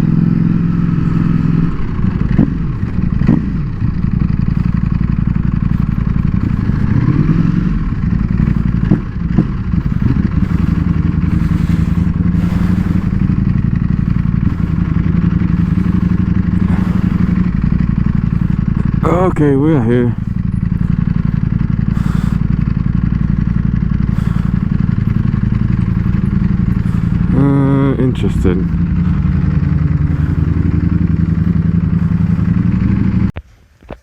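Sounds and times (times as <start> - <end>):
motorcycle engine riding: 0.0 - 34.0.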